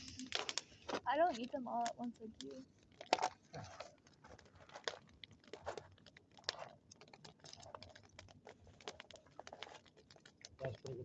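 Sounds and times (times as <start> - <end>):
bonfire crackling: 0.0 - 11.0.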